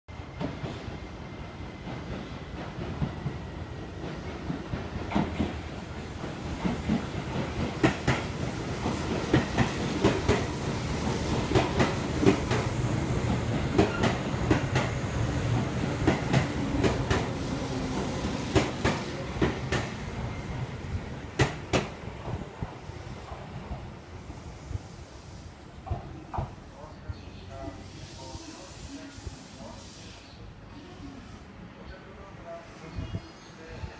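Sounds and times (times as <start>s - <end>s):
train wheels rumbling on rail: 0.1s - 26.9s.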